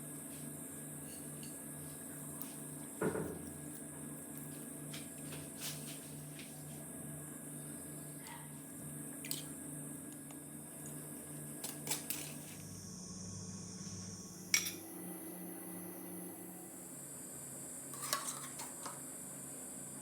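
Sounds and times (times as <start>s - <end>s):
steady low hum: 12.1s - 20.0s.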